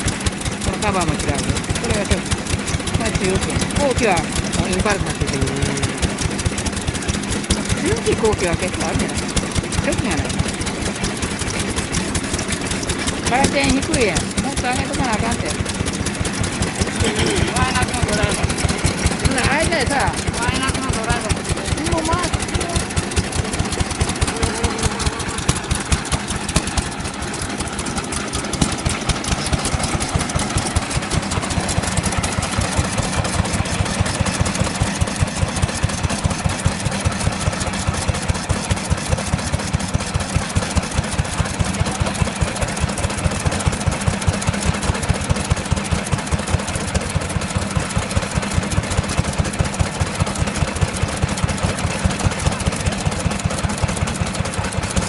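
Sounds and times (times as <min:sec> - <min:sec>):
stationary engine running: 0:00.0 - 0:55.0
loud exhaust pulses: 0:03.2 - 0:06.5.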